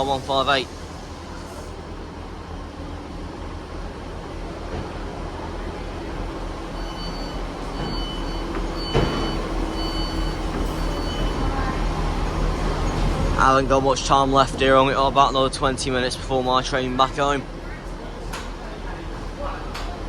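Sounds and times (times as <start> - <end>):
train engines rumbling: 0.0 - 20.0
two-tone door warning beeps: 6.7 - 11.7.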